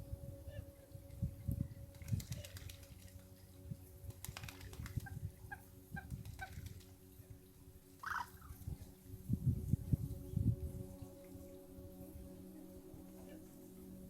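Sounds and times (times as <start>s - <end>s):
bird calling: 8.0s - 8.6s.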